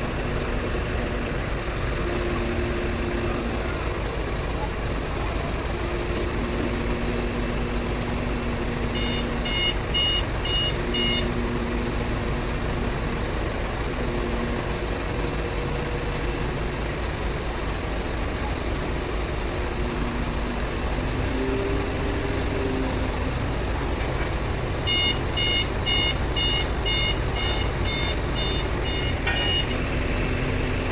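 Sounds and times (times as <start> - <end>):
diesel engine running: 0.0 - 30.9
short electronic warning beeps: 9.0 - 11.3, 24.9 - 29.8.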